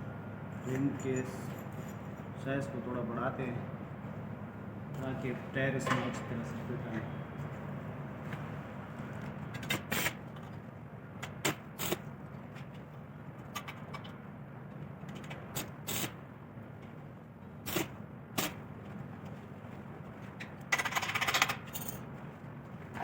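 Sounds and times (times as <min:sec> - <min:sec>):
metal tools clinking: 0:00.6 - 0:02.4.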